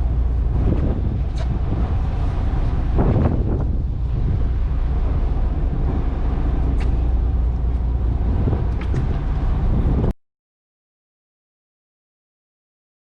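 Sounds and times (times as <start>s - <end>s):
loud low rumbling: 0.0s - 10.2s.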